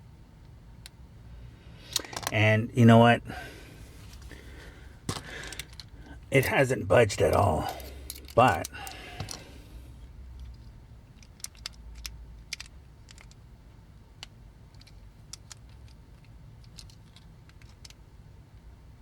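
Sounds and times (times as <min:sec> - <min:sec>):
hand tool clicking on toy: 0:11.2 - 0:13.4.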